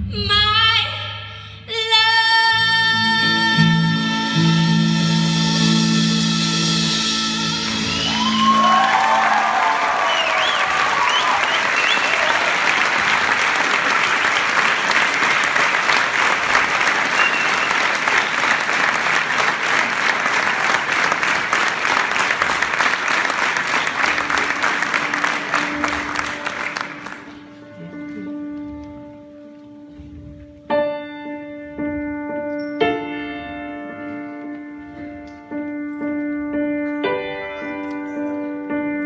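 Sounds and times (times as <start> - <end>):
whistles: 7.7 - 19.2
audience applauding and cheering: 7.7 - 27.6.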